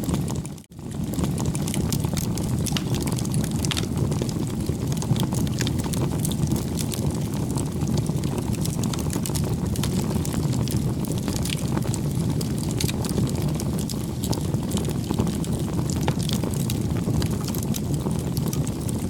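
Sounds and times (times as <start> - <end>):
bonfire crackling and popping: 0.0 - 19.0.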